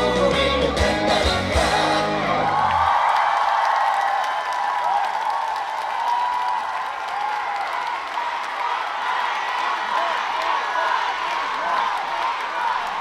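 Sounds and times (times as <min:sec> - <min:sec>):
live band playing trot song: 0:00.0 - 0:02.3
crowd cheering and screaming: 0:00.7 - 0:13.0.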